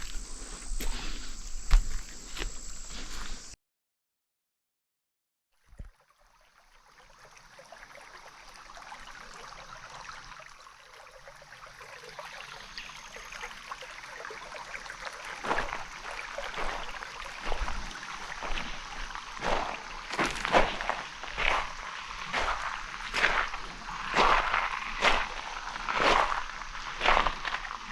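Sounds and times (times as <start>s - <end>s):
footsteps on a trail: 0.0s - 3.6s, 15.4s - 27.8s
small stream rushing: 6.2s - 27.9s.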